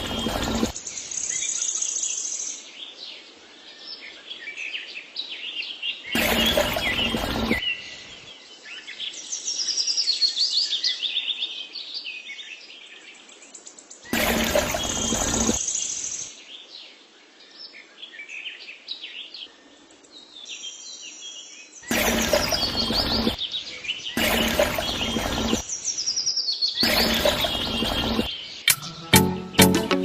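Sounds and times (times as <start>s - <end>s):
loud burst of noise: 0.0s - 0.8s, 6.2s - 7.6s, 14.1s - 15.6s, 21.9s - 23.5s, 24.1s - 25.7s, 26.8s - 28.3s
birds chirping and trilling: 0.0s - 29.7s.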